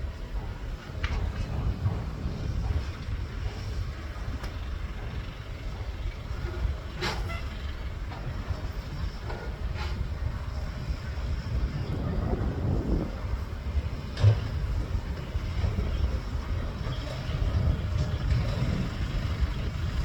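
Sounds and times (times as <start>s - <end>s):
excavator engine rumbling: 0.0s - 20.0s.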